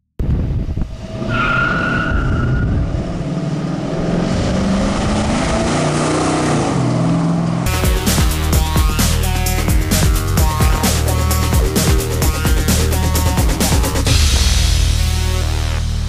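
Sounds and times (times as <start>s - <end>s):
brief high squeal: 1.1s - 2.8s
car engine running: 2.9s - 16.0s.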